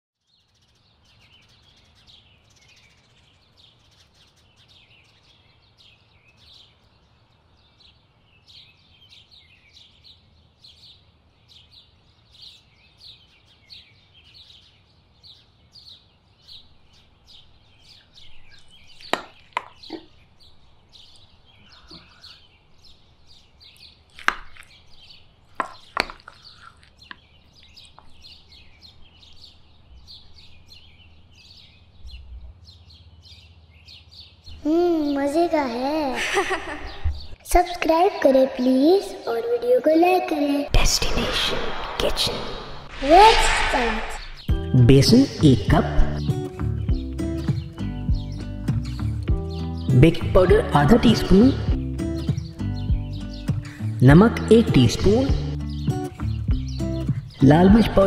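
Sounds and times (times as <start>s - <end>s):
birds chirping: 0.2s - 58.0s.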